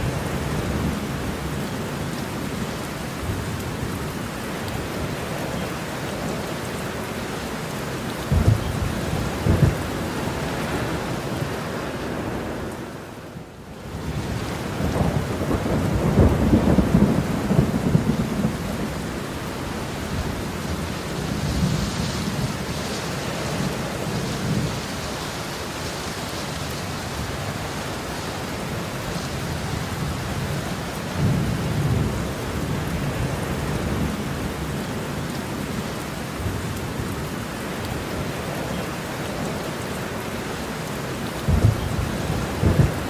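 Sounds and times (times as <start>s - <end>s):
heavy rain falling: 0.0s - 43.0s
rolling thunder: 8.3s - 11.1s, 14.1s - 19.2s, 41.4s - 43.0s.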